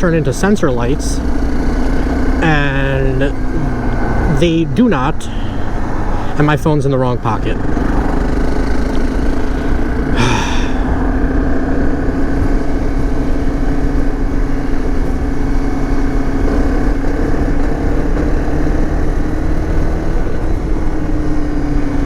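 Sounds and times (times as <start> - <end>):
dirt bike engine running: 0.0 - 22.0.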